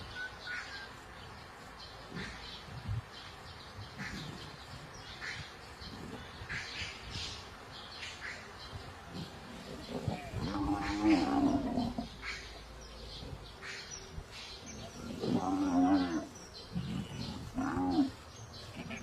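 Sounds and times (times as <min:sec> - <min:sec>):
faint bird chirps: 0:00.0 - 0:07.0
buffalo bawling: 0:09.2 - 0:12.1.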